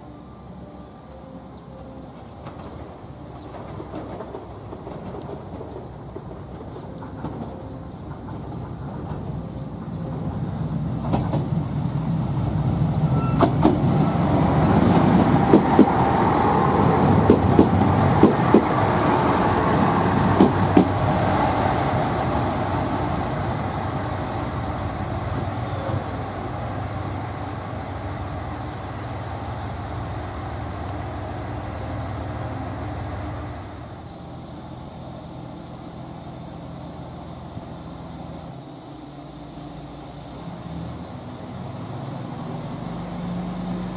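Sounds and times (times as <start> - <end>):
train passing: 0.0 - 43.9
wheels clacking over rail joints: 2.1 - 33.6
thin high squeal: 13.0 - 13.6.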